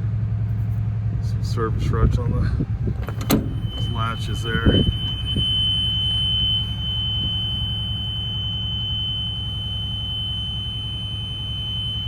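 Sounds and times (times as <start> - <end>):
bus engine idling: 0.0 - 12.0
constant high-pitched tone: 2.6 - 12.0.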